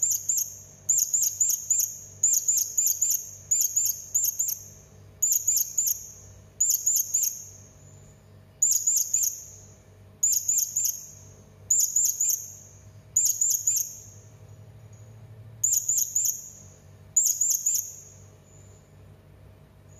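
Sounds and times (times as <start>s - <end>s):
parrot high-pitched chirping: 0.0s - 7.6s, 8.6s - 14.2s, 15.6s - 18.2s.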